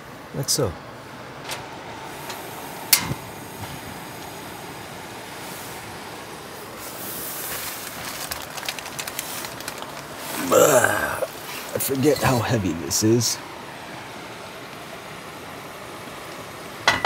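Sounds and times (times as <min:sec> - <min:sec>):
gas stove burner hissing: 0:01.0 - 0:08.1
oil crackling in a pan: 0:07.2 - 0:11.9.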